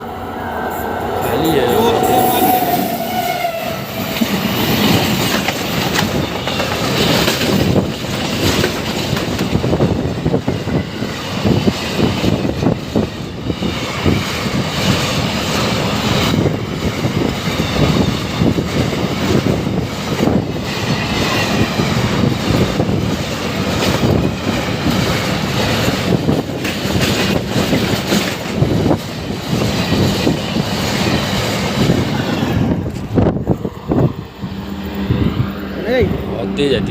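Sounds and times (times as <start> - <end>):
freight train passing: 0.0 - 36.9
wheels clacking over rail joints: 4.0 - 10.6, 14.0 - 33.3.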